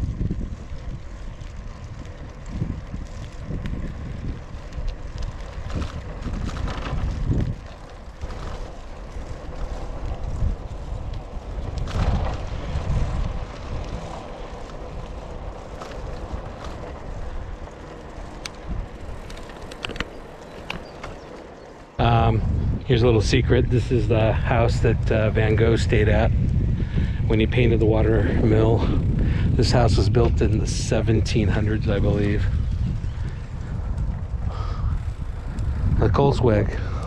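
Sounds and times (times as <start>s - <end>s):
wind buffeting microphone: 0.0s - 37.0s
faint clicks: 13.8s - 21.9s.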